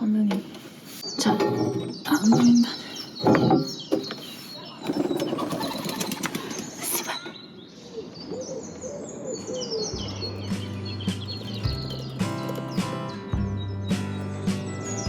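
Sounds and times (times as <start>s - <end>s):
songbirds chirping and singing: 0.0s - 15.0s
background music: 9.9s - 15.0s.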